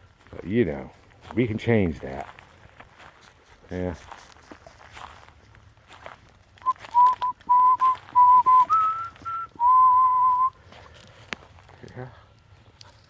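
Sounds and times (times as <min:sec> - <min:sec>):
person whistling: 0:06.6 - 0:10.6.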